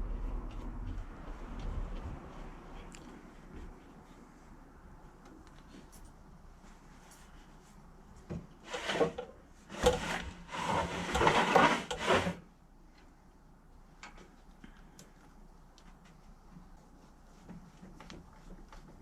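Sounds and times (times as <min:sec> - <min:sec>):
scraping: 0:08.6 - 0:12.4.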